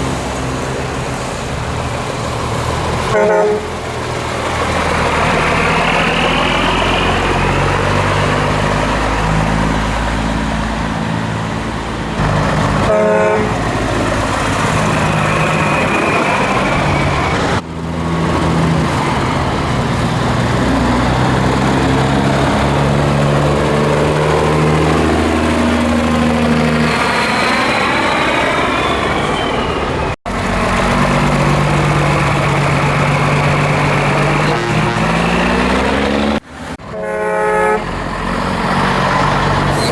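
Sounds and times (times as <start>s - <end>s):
truck diesel engine under load: 0.0s - 39.9s
truck horn toot: 3.1s - 3.8s, 12.8s - 13.6s, 34.4s - 35.4s, 36.8s - 38.0s.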